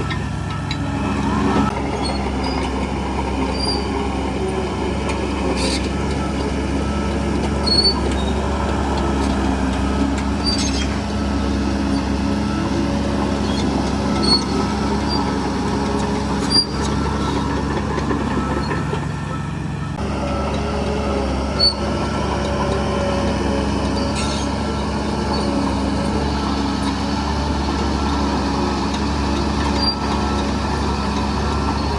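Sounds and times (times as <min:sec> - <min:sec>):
bulldozer diesel engine running: 0:00.0 - 0:31.9
short high-pitched squeaks: 0:03.5 - 0:04.0, 0:07.6 - 0:08.4, 0:10.3 - 0:11.0, 0:13.4 - 0:15.3, 0:16.1 - 0:17.4, 0:21.5 - 0:22.0, 0:24.0 - 0:24.7.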